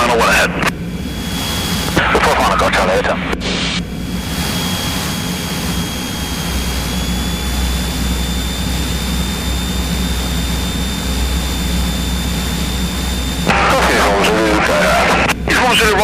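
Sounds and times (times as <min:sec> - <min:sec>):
propeller plane engine droning: 0:00.0 - 0:16.0
thin high whine: 0:01.0 - 0:16.0.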